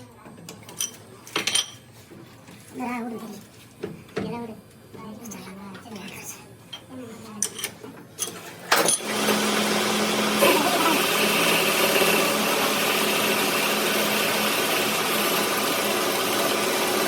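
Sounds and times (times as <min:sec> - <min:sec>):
machine humming: 0:09.0 - 0:17.0.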